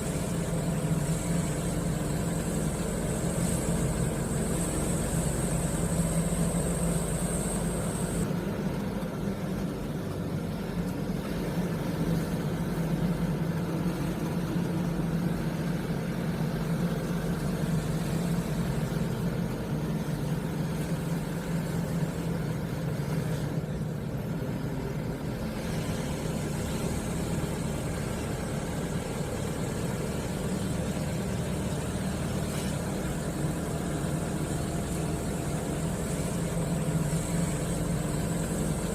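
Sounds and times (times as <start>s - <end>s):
faint high whine: 0.0s - 8.3s
truck diesel engine running: 0.0s - 38.9s.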